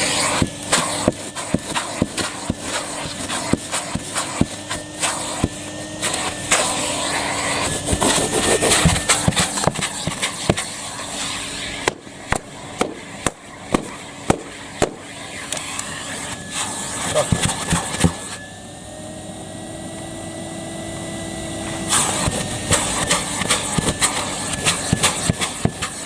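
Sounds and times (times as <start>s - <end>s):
vacuum rushing noise: 0.0s - 17.1s
vacuum cleaner hum: 0.0s - 26.0s.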